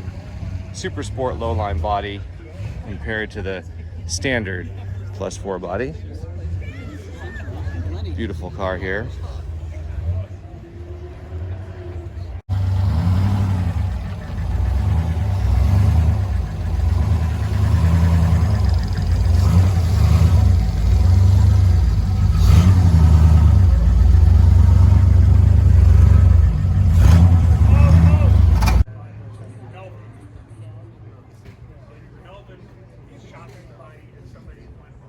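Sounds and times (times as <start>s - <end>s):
car engine running: 12.5s - 28.9s.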